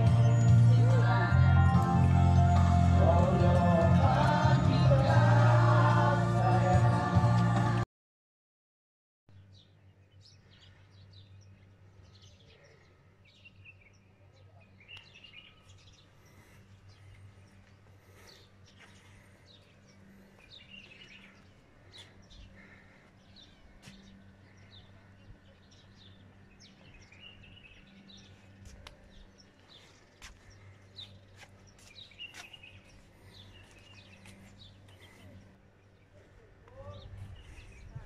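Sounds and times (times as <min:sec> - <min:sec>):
steady low hum: 0:09.7 - 0:38.0.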